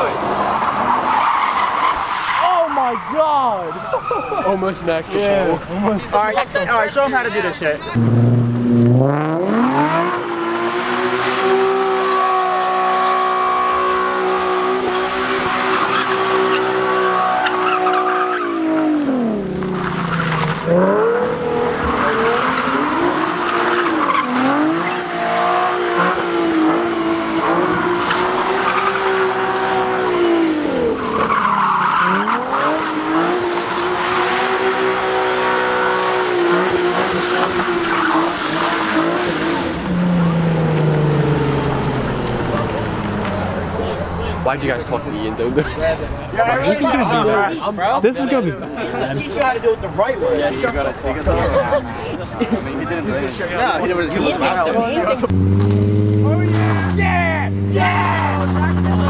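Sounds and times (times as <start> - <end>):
tyres squealing: 0.9 - 8.8, 19.5 - 25.1, 35.1 - 55.3
car engine revving hard: 7.9 - 46.4, 52.6 - 59.0.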